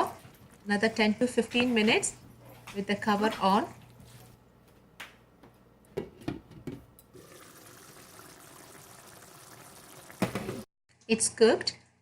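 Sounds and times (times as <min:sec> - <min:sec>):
pan simmering hiss: 0:07.2 - 0:10.6.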